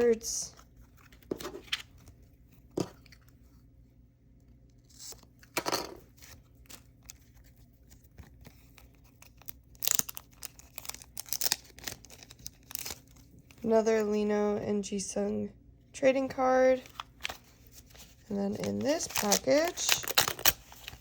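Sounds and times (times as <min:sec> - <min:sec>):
packaging crinkling and tearing: 0:06.1 - 0:13.6, 0:16.8 - 0:21.0.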